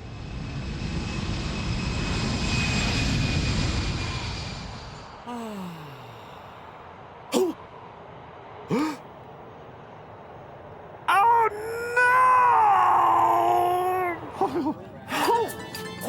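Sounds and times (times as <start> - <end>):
jet engine whine: 0.0 - 5.3
short vocal exclamations: 5.3 - 6.5, 7.3 - 7.6, 8.7 - 9.0.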